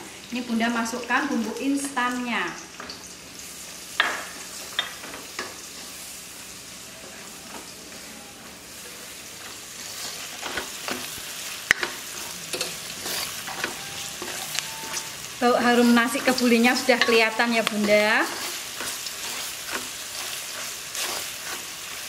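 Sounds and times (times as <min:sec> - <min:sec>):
aromatics sizzling in oil: 0:00.0 - 0:22.0
spatula scraping a wok: 0:09.8 - 0:11.2, 0:11.8 - 0:22.0.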